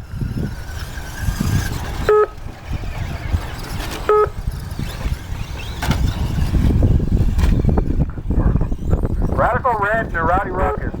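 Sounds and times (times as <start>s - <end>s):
short electronic beeps: 4.0s - 4.4s.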